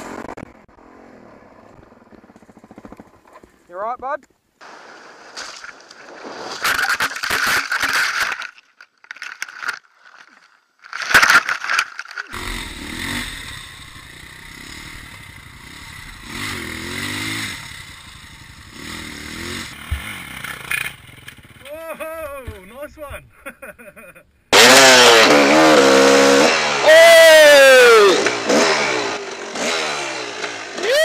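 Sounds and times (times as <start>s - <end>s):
rough scraping and clattering: 5.3s - 12.8s, 19.7s - 21.6s
dirt bike engine revving: 12.3s - 21.7s, 24.5s - 31.0s.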